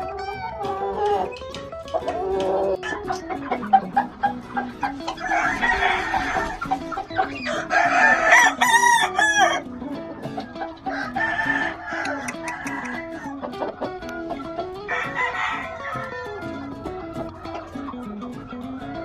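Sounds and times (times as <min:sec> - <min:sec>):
chickens clucking: 0:00.0 - 0:19.0
guitar music: 0:00.0 - 0:19.0
rooster crowing: 0:05.1 - 0:09.6, 0:10.9 - 0:13.4, 0:14.9 - 0:16.4.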